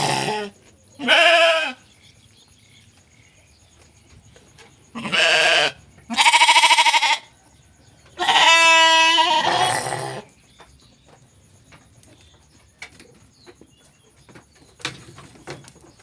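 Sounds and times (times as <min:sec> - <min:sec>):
sheep bleating: 0:00.0 - 0:01.8, 0:04.9 - 0:07.3, 0:08.2 - 0:10.3.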